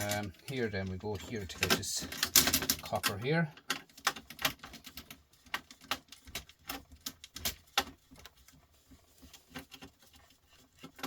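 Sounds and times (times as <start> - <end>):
tools clicking on metal and plastic: 0.0 - 8.3.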